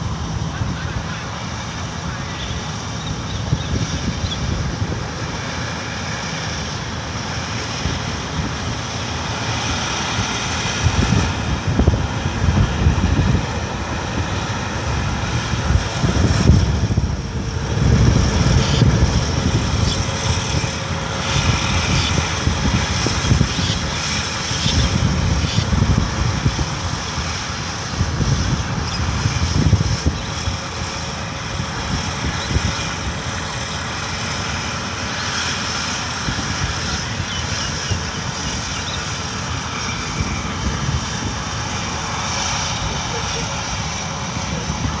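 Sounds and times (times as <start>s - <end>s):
harvester engine rumbling: 0.0s - 45.0s.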